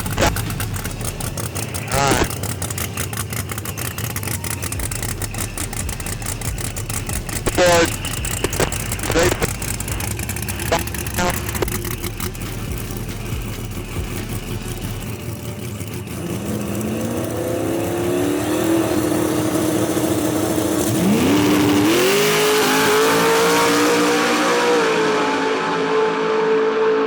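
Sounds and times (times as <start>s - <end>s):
race car engine accelerating: 0.0s - 27.0s.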